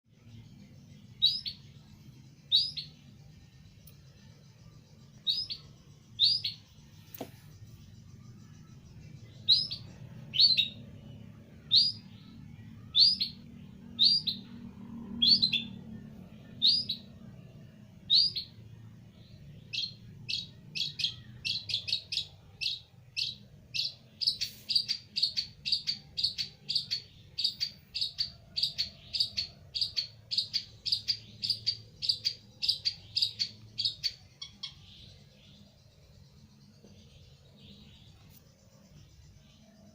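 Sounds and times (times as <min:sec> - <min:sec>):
faint low hum: 0:00.1 - 0:39.9
bird giving sharp chirps: 0:19.7 - 0:34.9.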